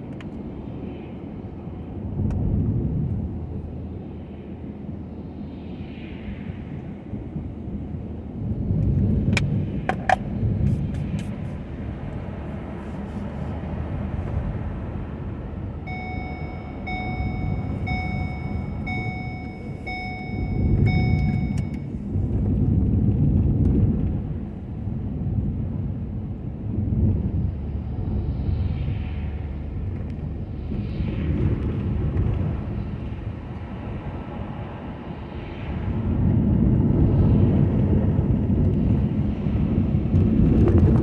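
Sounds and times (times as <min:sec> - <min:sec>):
truck engine and road rumble: 0:00.0 - 0:41.0
electronic beeps: 0:15.9 - 0:21.8.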